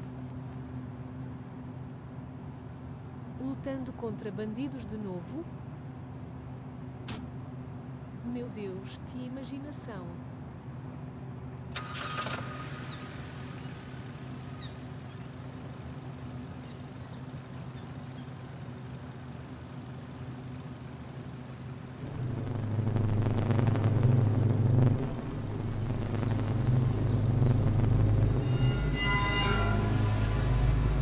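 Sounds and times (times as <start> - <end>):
car engine idling: 11.8 - 29.1
loud low hum: 12.7 - 31.0.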